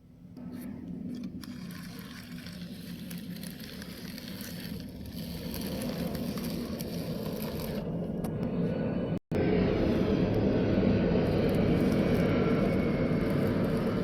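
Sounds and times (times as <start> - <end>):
toy trucks humming and rattling: 0.8 - 8.4, 11.2 - 14.0.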